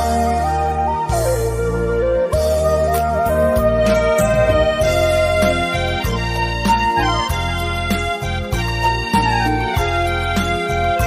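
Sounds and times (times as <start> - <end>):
bamboo flute melody: 0.0 - 11.0
keyboard backing track: 0.0 - 11.0
steady beat: 3.4 - 8.7.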